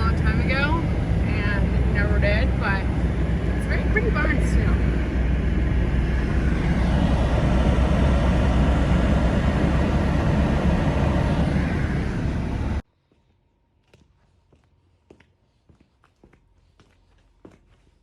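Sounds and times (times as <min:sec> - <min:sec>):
truck engine and road rumble: 0:00.0 - 0:12.8.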